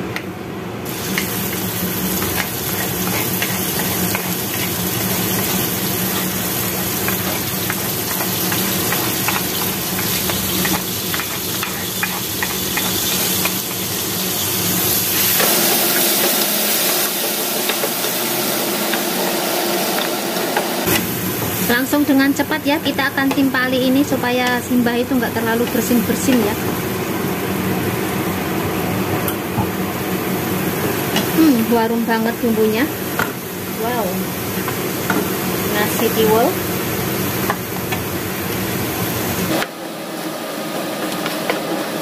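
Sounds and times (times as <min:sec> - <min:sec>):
chili sizzling in hot oil: 0:00.8 - 0:42.0
spatula tapping and stirring in pan: 0:02.2 - 0:13.8, 0:22.8 - 0:23.6.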